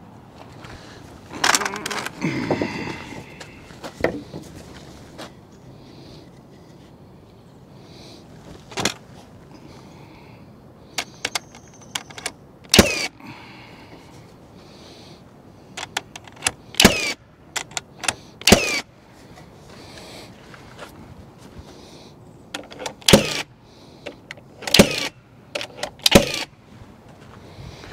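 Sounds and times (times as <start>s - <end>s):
clicks and taps on wood: 3.8s - 4.6s.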